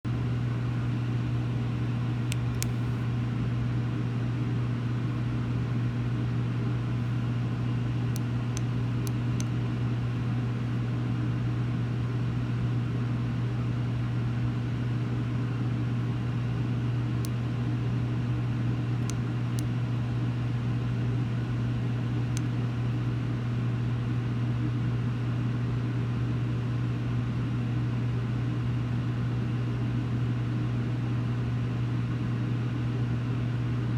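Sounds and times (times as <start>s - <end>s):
steady low hum: 0.1s - 25.0s.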